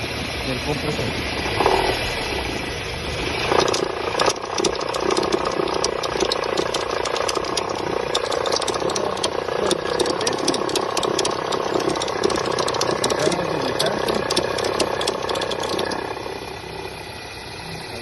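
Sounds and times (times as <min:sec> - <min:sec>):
car engine running: 0:00.0 - 0:18.0
fast irregular ticking: 0:03.2 - 0:17.1
pulley rattling: 0:03.3 - 0:17.0.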